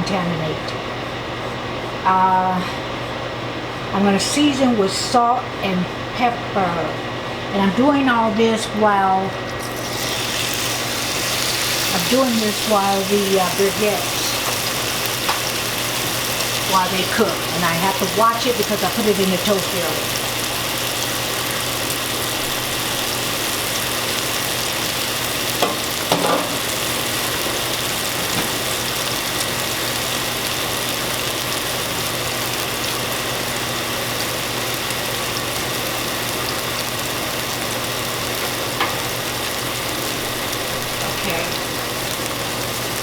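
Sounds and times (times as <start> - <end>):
low steady hum: 0.0 - 28.1
oil sizzling in a frying pan: 9.5 - 43.0.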